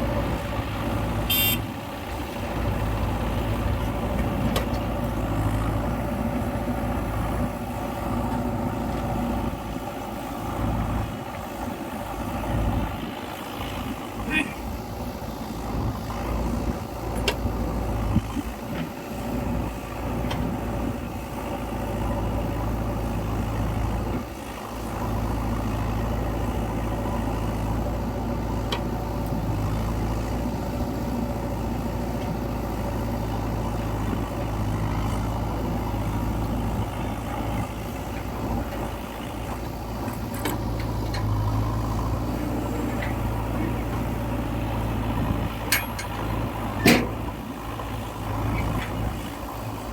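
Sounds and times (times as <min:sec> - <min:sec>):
backhoe diesel engine running: 0:00.0 - 0:49.9
sharp metal clanks: 0:45.7 - 0:46.2.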